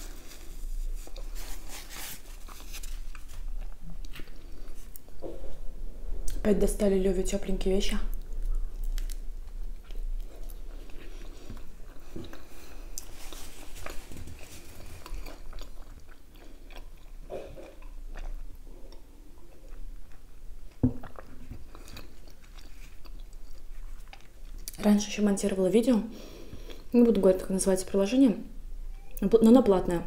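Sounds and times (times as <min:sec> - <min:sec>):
person biting and chewing: 0:08.3 - 0:24.8.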